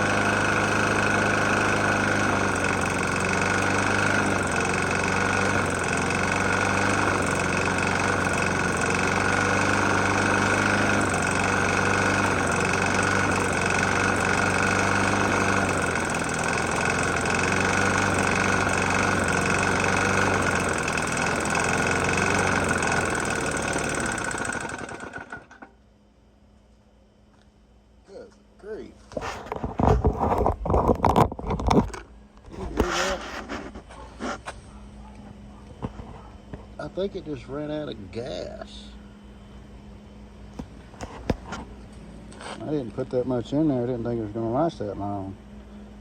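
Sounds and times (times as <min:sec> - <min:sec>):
engine sputtering and dying: 0:00.0 - 0:25.8
lawn mower engine knocking: 0:00.0 - 0:25.8.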